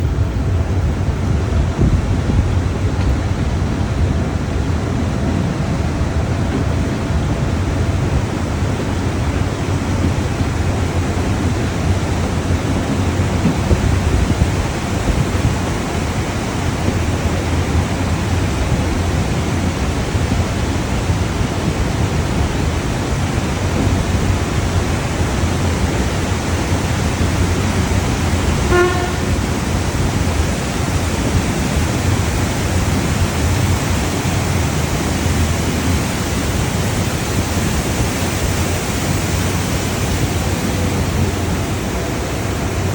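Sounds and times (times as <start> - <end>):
train running: 0.0 - 42.9
train horn toot: 28.2 - 30.3.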